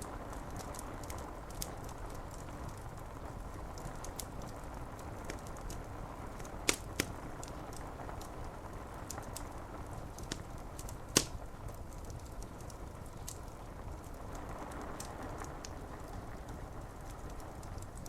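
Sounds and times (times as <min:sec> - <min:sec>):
fire crackling and popping: 0:00.0 - 0:18.0
rain on window glass: 0:00.0 - 0:18.0.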